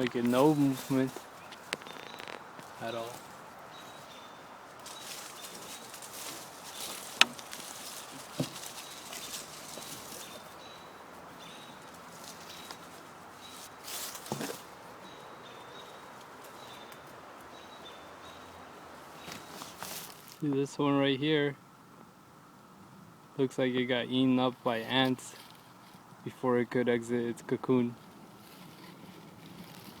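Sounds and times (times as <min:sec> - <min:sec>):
leaves rustling: 0:00.0 - 0:20.6, 0:24.1 - 0:30.0
handling knocks: 0:04.9 - 0:10.5, 0:14.1 - 0:14.7.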